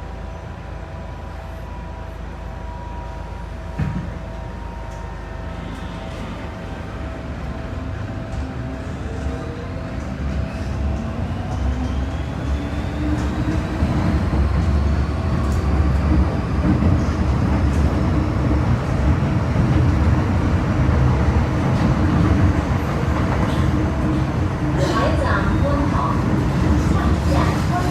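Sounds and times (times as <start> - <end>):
train wheels rumbling on track: 0.0 - 27.9.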